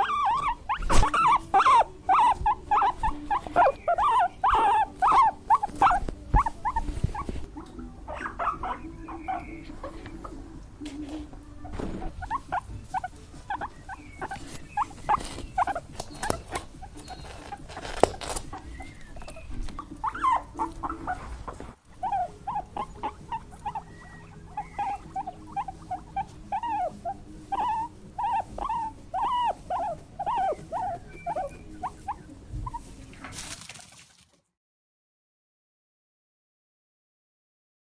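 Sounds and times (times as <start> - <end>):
small animals squeaking: 0.0 - 33.8.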